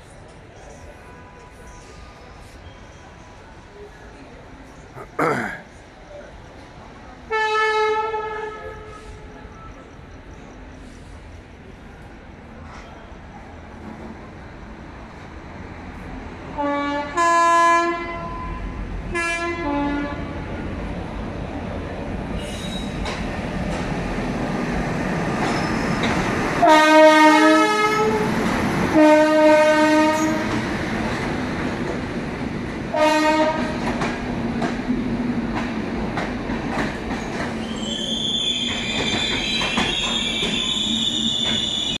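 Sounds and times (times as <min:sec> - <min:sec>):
train wheels rumbling on rail: 0:00.0 - 0:42.0
locomotive horn blasts: 0:19.2 - 0:20.3, 0:26.6 - 0:28.2, 0:29.0 - 0:30.4, 0:32.9 - 0:33.7
wheels squealing: 0:25.4 - 0:26.3.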